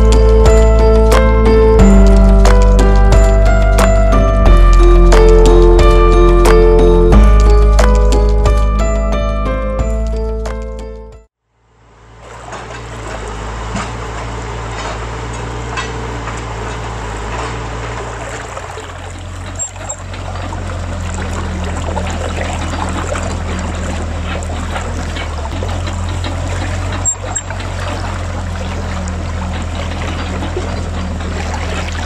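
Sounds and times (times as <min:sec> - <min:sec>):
river water rushing: 0:12.3 - 0:32.0.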